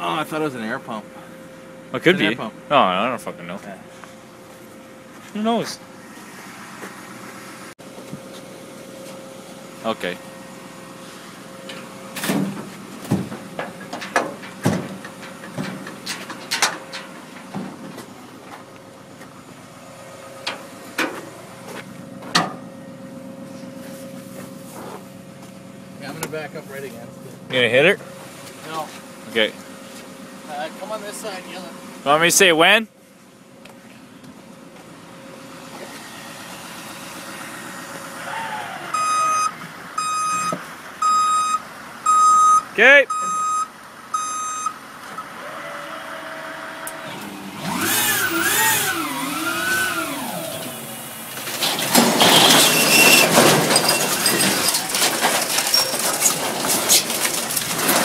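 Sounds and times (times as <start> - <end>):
truck engine running: 0.0 - 58.0
scrap items knocking and clanking: 12.2 - 18.1, 51.4 - 58.0
reverse alarm beeping: 38.9 - 45.3.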